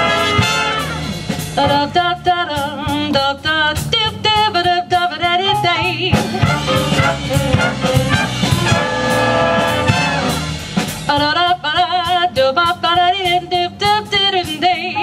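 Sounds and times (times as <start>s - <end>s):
big band playing swing: 0.0s - 15.0s
vibrato melody line: 5.6s - 10.6s.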